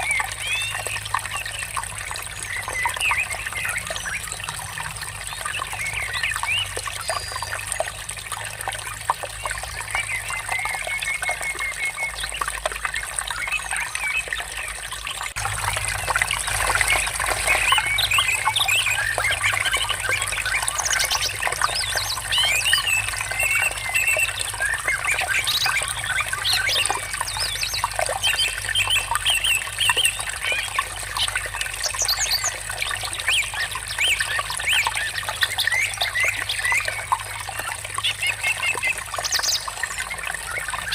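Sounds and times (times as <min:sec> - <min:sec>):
water trickling: 0:00.0 - 0:40.9
birds chirping: 0:13.2 - 0:32.6.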